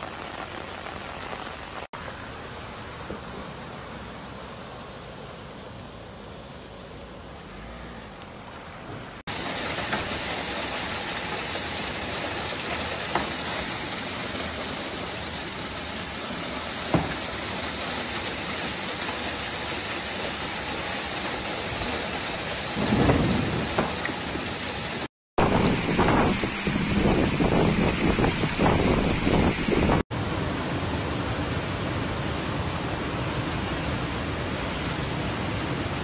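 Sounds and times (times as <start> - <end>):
heavy rain pouring: 0.0 - 1.9, 9.3 - 36.0.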